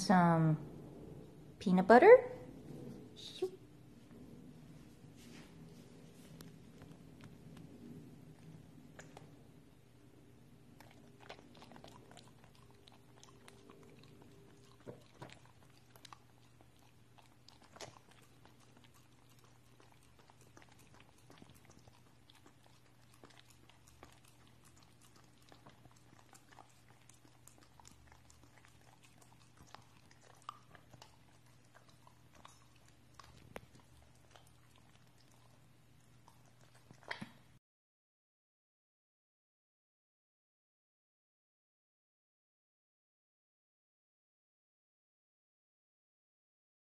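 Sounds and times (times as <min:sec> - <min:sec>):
dog licking and smacking lips: 0:05.8 - 0:09.4, 0:10.7 - 0:37.6.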